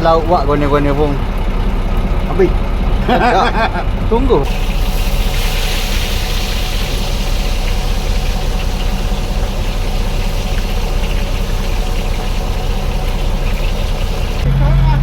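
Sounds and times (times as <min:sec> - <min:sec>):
boat engine idling: 0:00.0 - 0:15.0
hiss: 0:04.5 - 0:14.4.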